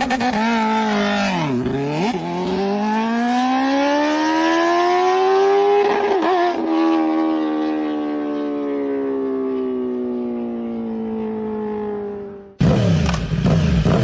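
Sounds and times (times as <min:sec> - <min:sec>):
motorbike engine accelerating: 0:10.7 - 0:14.0.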